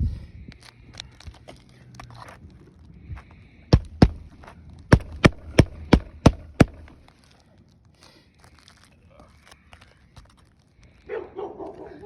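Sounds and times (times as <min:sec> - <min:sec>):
hammer striking nails: 0:03.7 - 0:07.0.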